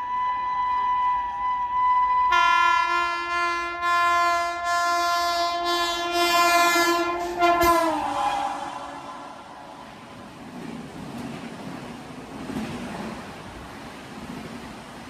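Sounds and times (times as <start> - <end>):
electric locomotive horn: 0.0 - 10.1
train approaching at speed: 0.0 - 15.0.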